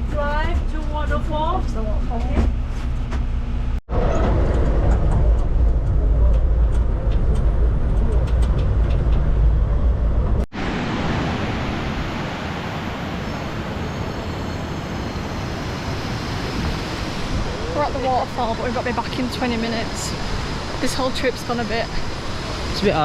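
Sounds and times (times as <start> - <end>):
vehicle engine and road noise: 0.0 - 23.0
waterfall rushing: 10.6 - 23.0.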